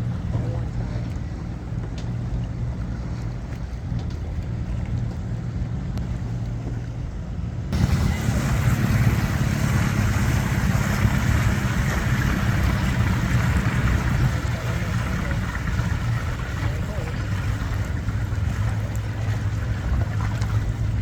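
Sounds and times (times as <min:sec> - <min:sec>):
motorboat engine running: 0:00.0 - 0:21.0
water rushing and spray: 0:07.7 - 0:21.0.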